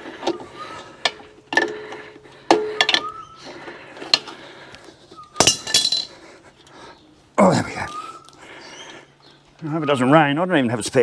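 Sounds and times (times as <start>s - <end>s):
metal spanner clinking on nuts: 5.4s - 6.1s.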